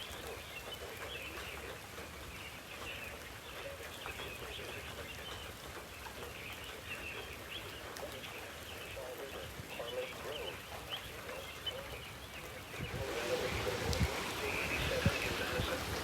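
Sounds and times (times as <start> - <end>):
birds chirping: 0.0 - 16.0
steady background hiss: 7.0 - 16.0.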